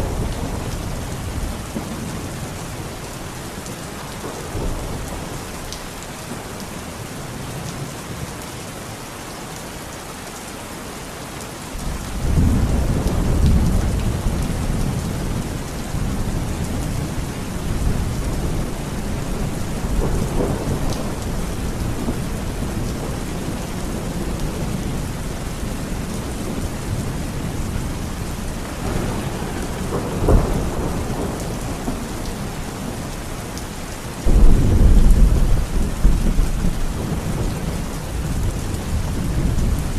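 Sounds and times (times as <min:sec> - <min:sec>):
thunder rumbling: 0:00.0 - 0:02.9, 0:12.1 - 0:39.9
heavy rain: 0:00.0 - 0:39.9
thunder crack: 0:28.6 - 0:32.6.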